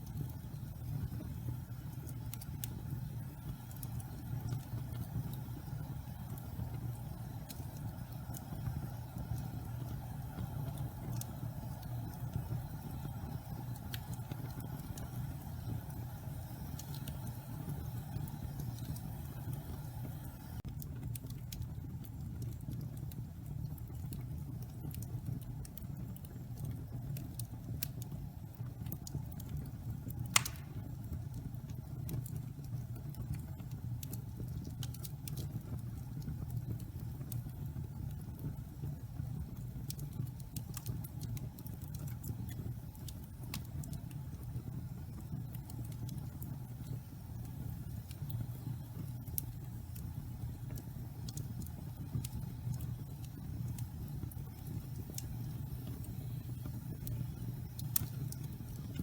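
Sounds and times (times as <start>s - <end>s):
fire crackling: 0.0s - 59.0s
fire flames rumbling: 0.0s - 59.0s
log popping loudly: 30.3s - 30.8s.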